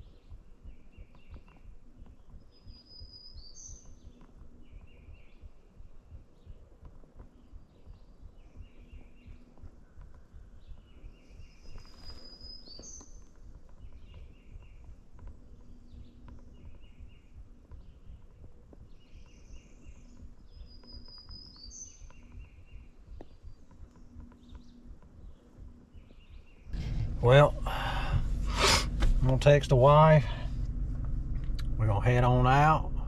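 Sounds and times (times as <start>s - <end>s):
bird high rising song: 0.0s - 33.0s
low rumble: 26.7s - 33.0s.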